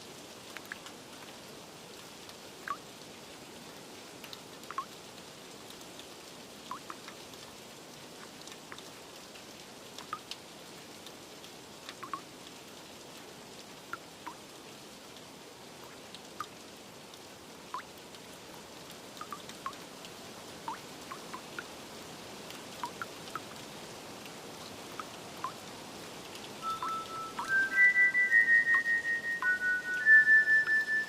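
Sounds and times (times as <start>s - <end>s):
rain hiss: 0.0s - 31.0s
water drops plinking: 4.7s - 4.9s, 6.7s - 7.0s, 12.0s - 12.2s, 19.2s - 19.8s, 20.7s - 21.4s, 26.6s - 31.0s
soft chime-like music: 26.6s - 31.0s.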